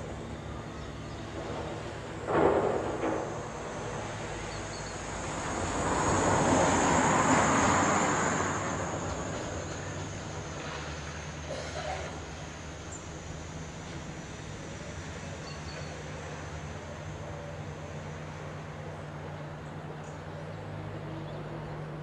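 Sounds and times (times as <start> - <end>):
vehicle passing by: 1.4 - 11.4.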